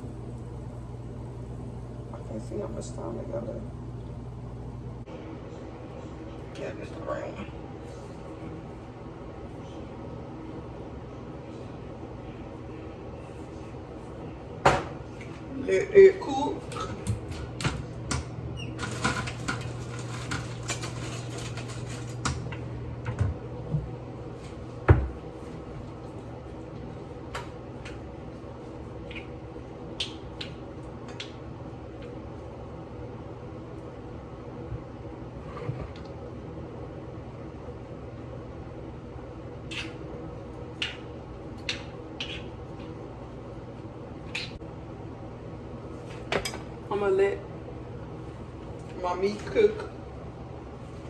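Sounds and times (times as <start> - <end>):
grill humming: 0.0 - 7.1, 14.3 - 29.7
low steady hum: 0.0 - 51.0.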